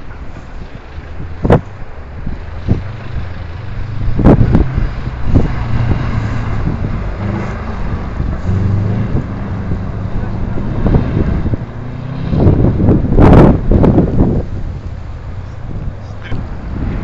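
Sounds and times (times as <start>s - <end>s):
car engine humming: 0.0s - 17.0s
wind buffeting microphone: 0.0s - 17.0s.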